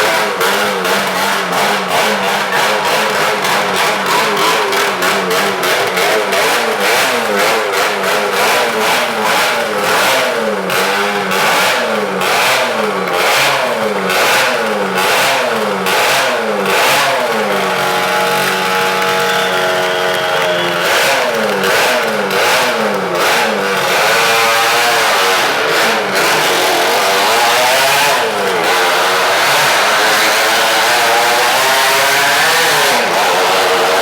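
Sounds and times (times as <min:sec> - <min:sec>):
motorcycle engine circling: 0:00.0 - 0:34.0.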